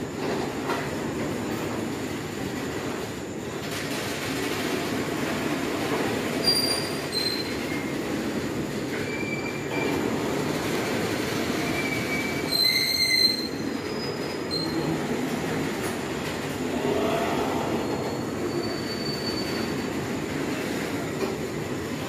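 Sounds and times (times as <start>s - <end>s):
high-pitched wheel squeals: 6.4s - 7.9s, 11.7s - 14.9s, 17.6s - 19.9s.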